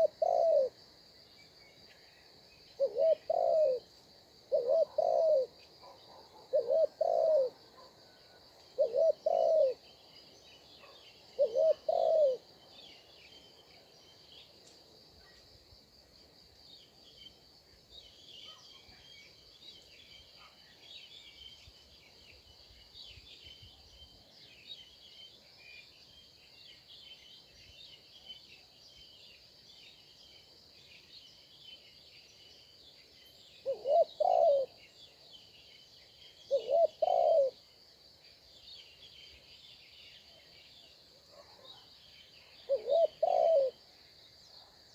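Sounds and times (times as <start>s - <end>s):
dove cooing: 0.0s - 0.8s, 2.8s - 3.9s, 4.5s - 7.6s, 8.8s - 9.8s, 11.4s - 12.4s, 33.6s - 34.8s, 36.5s - 37.6s, 42.6s - 43.8s
small birds chirping faintly: 0.0s - 44.9s.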